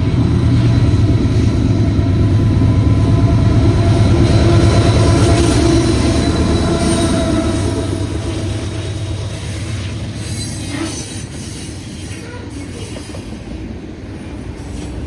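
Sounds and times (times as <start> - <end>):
freight train rumbling past: 0.0 - 15.0
thin wheel squeal: 10.2 - 13.2.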